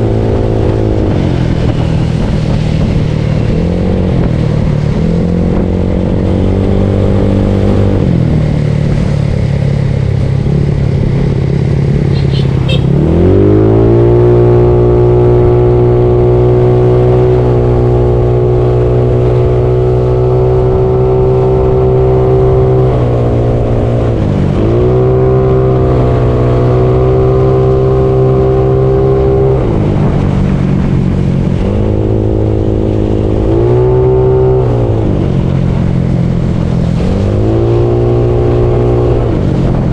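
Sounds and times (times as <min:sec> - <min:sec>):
wind rushing: 0:00.0 - 0:09.4
scooter engine running: 0:08.5 - 0:13.2.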